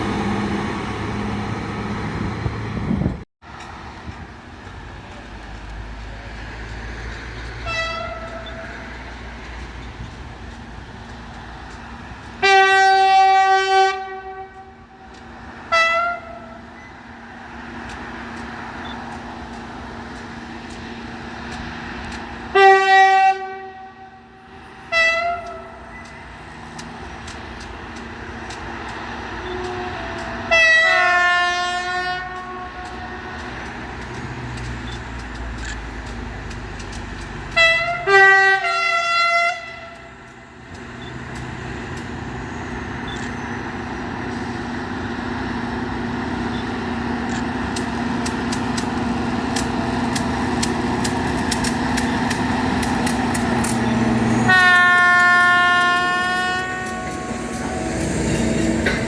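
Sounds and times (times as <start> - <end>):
running train hum: 0.0 - 59.0
locomotive horn blasts: 7.6 - 8.9, 12.4 - 15.1, 15.7 - 16.7, 22.5 - 26.0, 29.4 - 33.7, 37.5 - 40.1, 52.8 - 59.0.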